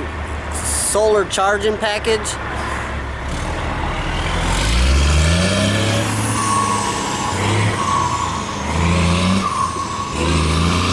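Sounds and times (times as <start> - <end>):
vehicle engine accelerating: 2.5 - 10.9.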